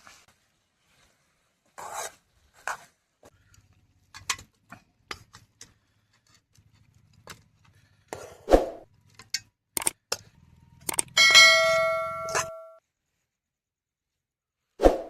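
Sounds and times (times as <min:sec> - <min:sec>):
utensils clicking on cookware: 0:09.2 - 0:10.2.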